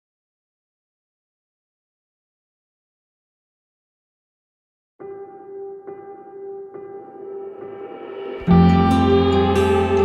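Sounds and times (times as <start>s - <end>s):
music: 5.0s - 10.0s.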